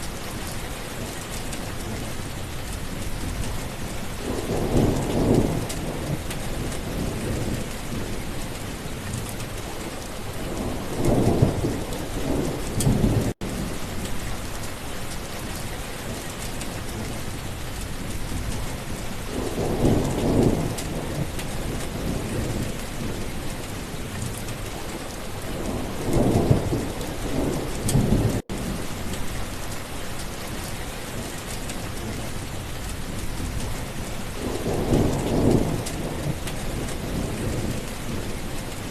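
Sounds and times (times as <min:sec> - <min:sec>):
heavy rain: 0:00.0 - 0:38.9
rolling thunder: 0:03.2 - 0:09.6, 0:10.4 - 0:14.4, 0:18.2 - 0:29.6, 0:33.0 - 0:38.9.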